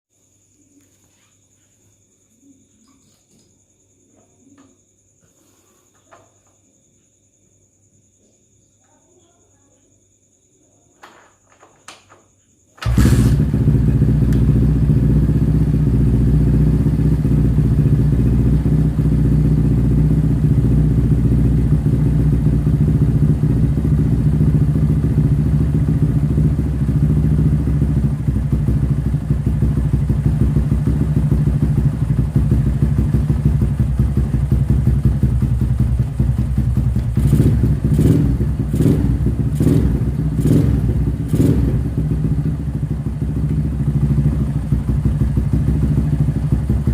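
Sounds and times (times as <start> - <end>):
motorcycle engine idling: 12.8 - 46.9
motorcycle throttle blips: 12.8 - 46.9.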